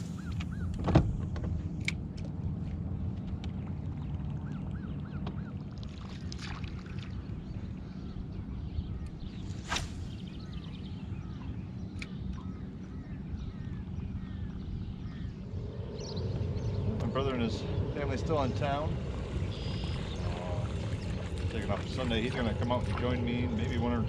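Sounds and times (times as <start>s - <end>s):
boat motor humming: 0.0s - 24.0s
birds chirping faintly: 7.0s - 24.0s.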